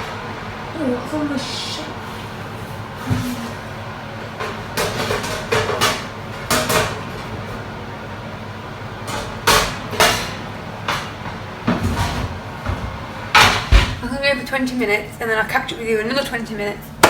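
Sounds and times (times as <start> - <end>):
dishes and doors knocking: 11.7 - 14.0.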